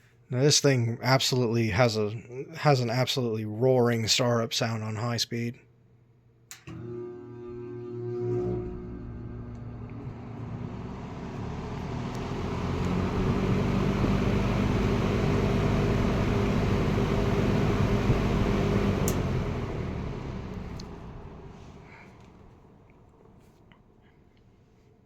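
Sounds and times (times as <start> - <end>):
fan switch click: 6.5 - 6.8, 19.0 - 19.3
box fan running: 6.5 - 23.6.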